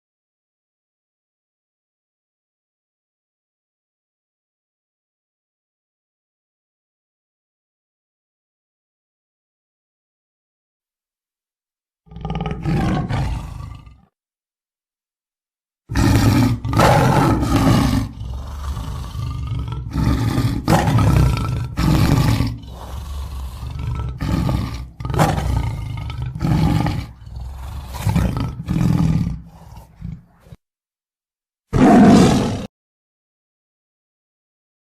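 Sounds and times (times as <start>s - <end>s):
big cat roaring and growling: 12.1s - 14.1s, 15.9s - 30.6s, 31.7s - 32.7s.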